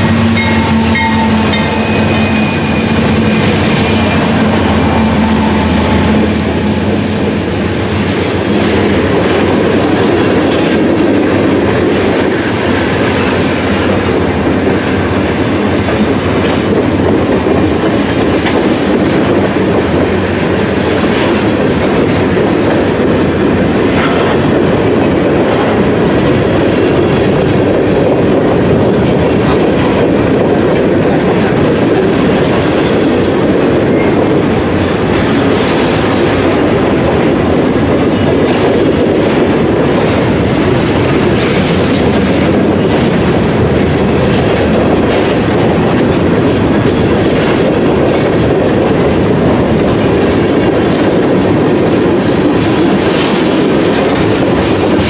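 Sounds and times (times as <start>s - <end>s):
train wheels rumbling on rails: 0.0s - 55.0s
wheels clicking over rail joints: 15.6s - 55.0s.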